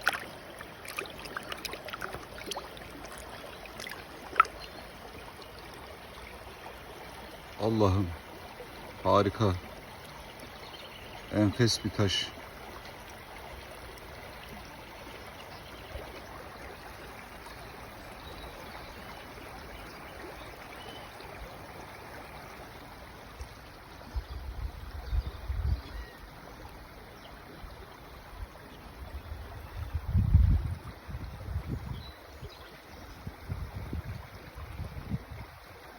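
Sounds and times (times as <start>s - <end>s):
stream water rushing: 0.0s - 24.8s.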